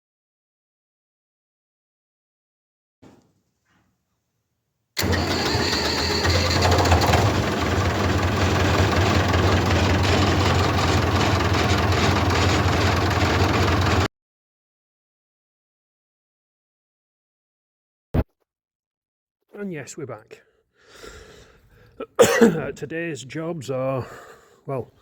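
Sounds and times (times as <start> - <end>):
tractor diesel engine running: 5.0 - 14.1.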